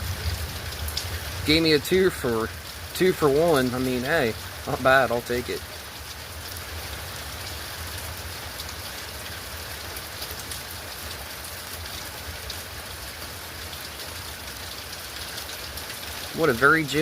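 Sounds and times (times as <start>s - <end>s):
steady rain falling: 0.0s - 17.0s
raindrop ticks: 0.3s - 6.6s.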